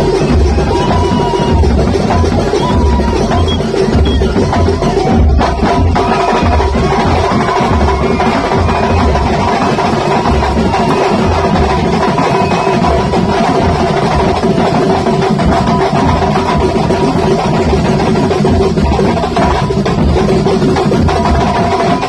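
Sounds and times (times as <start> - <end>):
deep bass drum pulse: 0.0 - 11.8
frame drums beating: 0.0 - 22.0.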